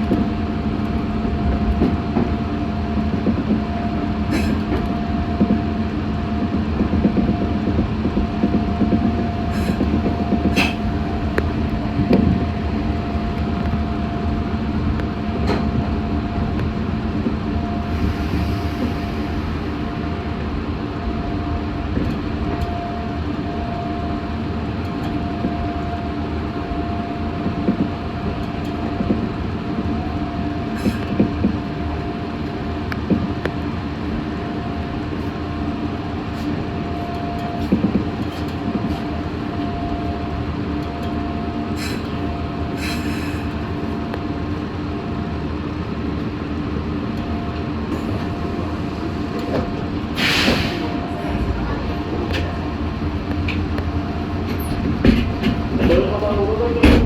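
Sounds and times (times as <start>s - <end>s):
clacks over rail joints: 0.0s - 5.6s, 6.4s - 13.9s, 24.7s - 44.8s, 46.0s - 57.0s
electric train whining tone: 0.0s - 57.0s
train wheels rumbling on track: 0.0s - 57.0s.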